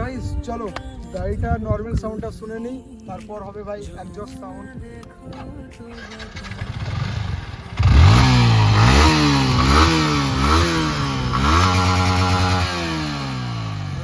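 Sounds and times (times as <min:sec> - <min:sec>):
motorcycle engine revving: 0:05.9 - 0:14.0.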